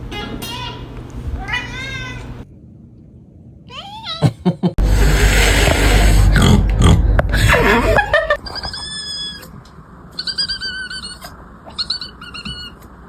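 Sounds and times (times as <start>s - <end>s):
cat high squeaky calls: 8.4s - 9.5s, 10.1s - 12.9s.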